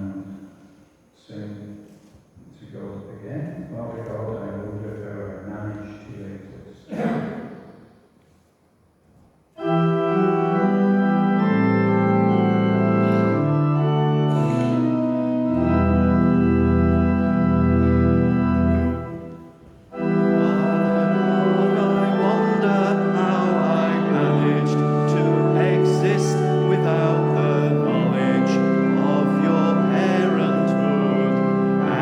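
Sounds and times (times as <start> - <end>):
organ playing sustained chords: 9.6 - 32.0.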